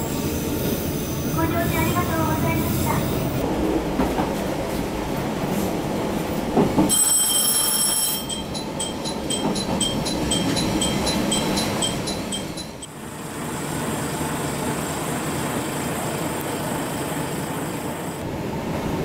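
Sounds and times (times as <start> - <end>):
train wheels rumbling on rail: 0.0 - 19.0
high ringing: 6.9 - 12.9.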